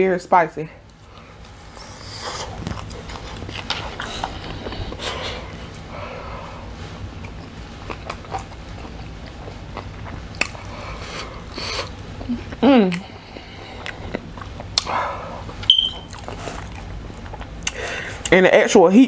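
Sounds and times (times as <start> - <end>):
person chewing with mouth clicks: 1.1 - 5.8, 7.2 - 18.4
woman moaning: 12.3 - 13.0.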